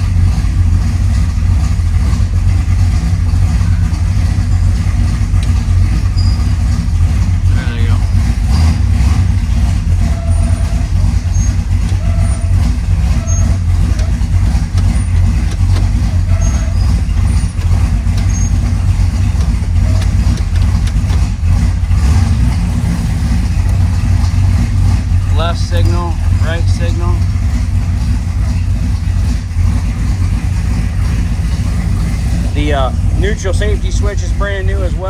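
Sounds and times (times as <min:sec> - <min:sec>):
car engine idling: 0:00.0 - 0:35.0
faint short squeaks: 0:06.1 - 0:06.7, 0:10.0 - 0:18.8.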